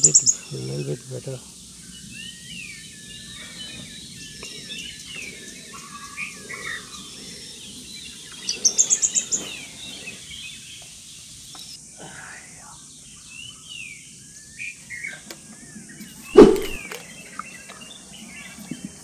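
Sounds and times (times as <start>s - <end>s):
birds chirping and whistling: 0.0s - 19.0s
high sharp bird notes: 16.4s - 16.9s.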